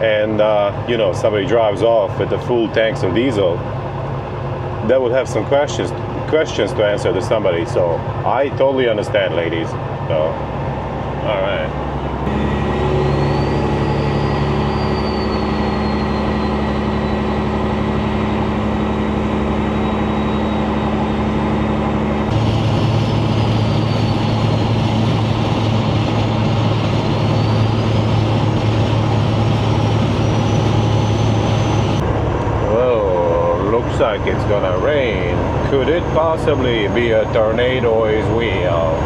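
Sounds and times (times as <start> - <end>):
diesel truck engine running: 0.0 - 39.0
faint high whistle: 12.3 - 17.9, 19.6 - 21.2.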